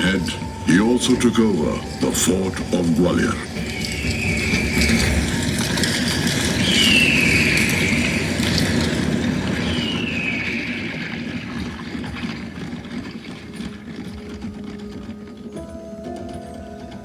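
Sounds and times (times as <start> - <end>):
battle rumble over loudspeakers: 0.0 - 12.0
descending whistles: 0.0 - 12.9.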